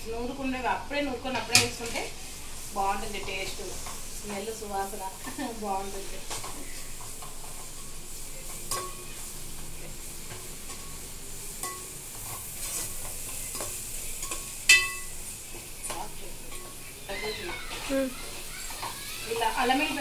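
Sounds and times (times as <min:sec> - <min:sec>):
onions sizzling in a pan: 0:00.0 - 0:20.0
spoon scraping and clinking pan: 0:11.6 - 0:15.1.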